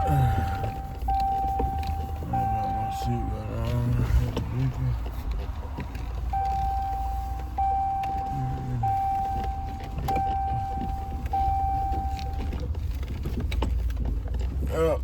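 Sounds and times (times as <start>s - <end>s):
warning chime: 0.0s - 4.5s, 6.4s - 12.5s
low engine rumble: 0.0s - 15.0s.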